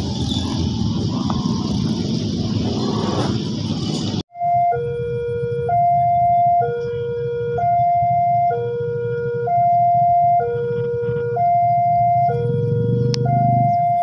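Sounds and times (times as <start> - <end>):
steady low rumble: 0.0 - 13.9
two-tone warning signal: 4.3 - 14.0.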